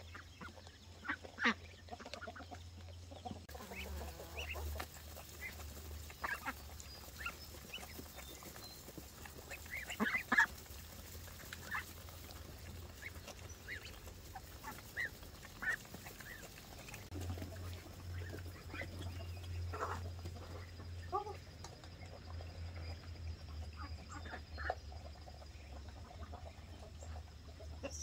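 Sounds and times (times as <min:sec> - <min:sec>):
poultry honking and clucking: 0:00.0 - 0:21.5.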